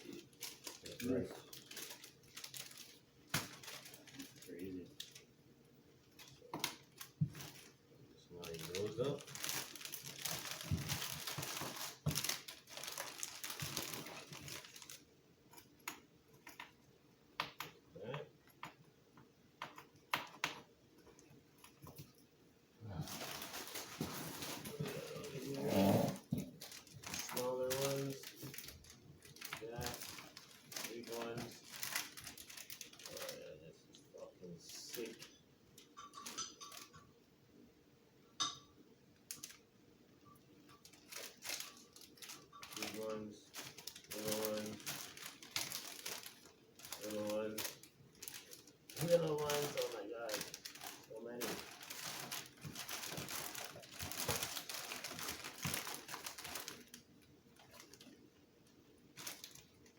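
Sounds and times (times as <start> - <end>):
plastic packaging crinkling: 0.0 - 5.3, 6.0 - 16.7, 23.0 - 33.6, 34.2 - 37.0, 39.2 - 39.7, 40.6 - 58.2, 59.1 - 59.9.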